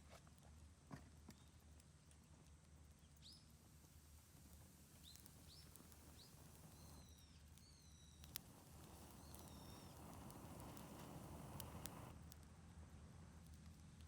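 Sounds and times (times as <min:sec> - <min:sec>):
faint bird chirps: 0:05.0 - 0:10.9.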